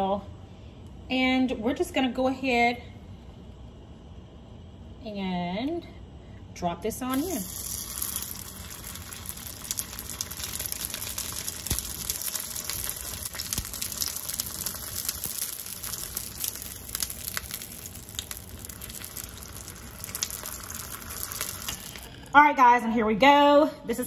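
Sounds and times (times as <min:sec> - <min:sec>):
food sizzling in a skillet: 0:07.1 - 0:22.3.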